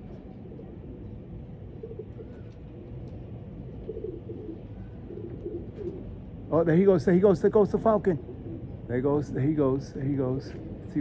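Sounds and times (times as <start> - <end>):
pigeons cooing: 1.7 - 3.0, 3.7 - 6.1, 8.2 - 8.9.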